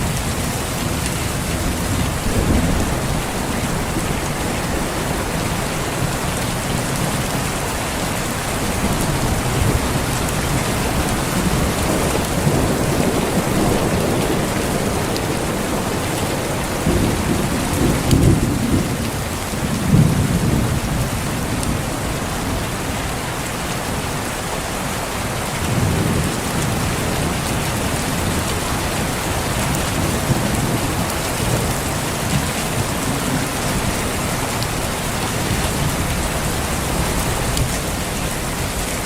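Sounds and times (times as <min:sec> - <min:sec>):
heavy rain: 0:00.0 - 0:39.0
distant thunder rolling: 0:01.4 - 0:08.0.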